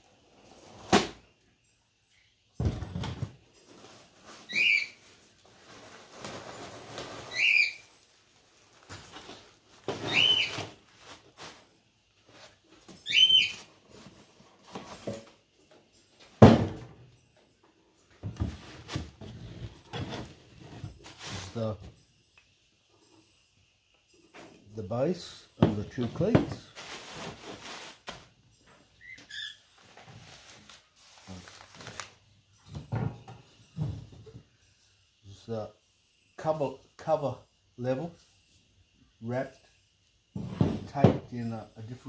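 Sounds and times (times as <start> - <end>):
plastic packaging rustling: 3.7 - 11.7, 29.8 - 32.2
bird whistled call: 4.5 - 5.0, 7.3 - 7.8, 13.0 - 13.6.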